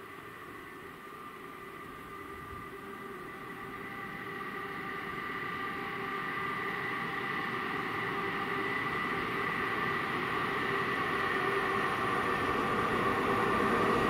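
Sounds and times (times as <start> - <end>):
freight train rumble and whine: 0.0 - 14.0.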